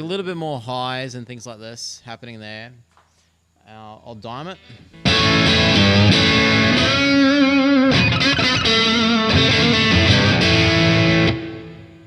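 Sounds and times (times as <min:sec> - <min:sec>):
distorted electric guitar: 0:04.6 - 0:12.0.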